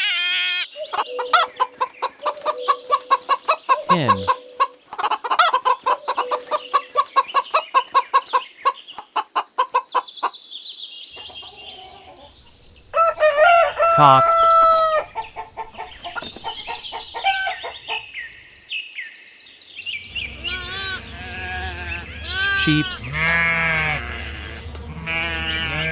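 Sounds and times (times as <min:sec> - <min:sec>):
chickens clucking: 0:00.8 - 0:10.4, 0:13.0 - 0:18.2, 0:20.1 - 0:25.0
chicks peeping: 0:00.9 - 0:10.3
rooster crowing: 0:13.0 - 0:15.0.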